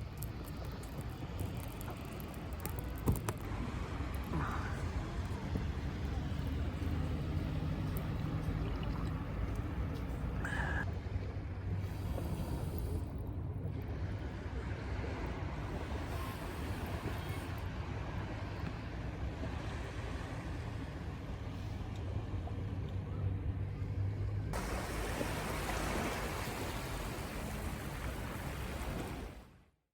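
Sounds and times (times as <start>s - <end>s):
surf on the shore: 13.9s - 22.7s, 24.6s - 29.7s.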